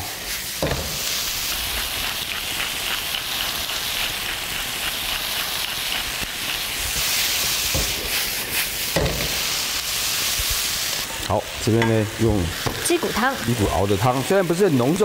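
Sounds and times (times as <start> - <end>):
chicken and onions sizzling in pan: 0.0 - 15.0.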